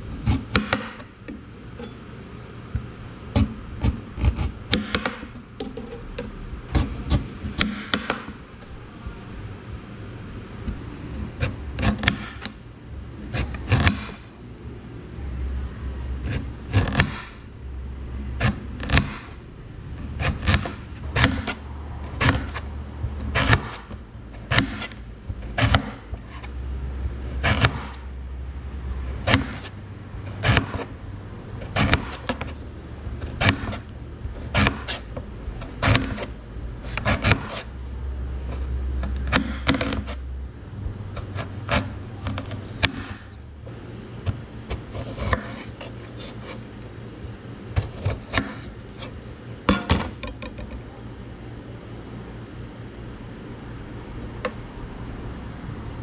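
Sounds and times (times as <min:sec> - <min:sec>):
low hum: 0:00.0 - 0:56.0
knife chopping on cutting board: 0:00.1 - 0:01.1, 0:03.4 - 0:06.0, 0:16.2 - 0:17.4, 0:20.2 - 0:22.6, 0:24.5 - 0:26.5, 0:27.4 - 0:28.0, 0:44.2 - 0:45.7, 0:47.8 - 0:49.1.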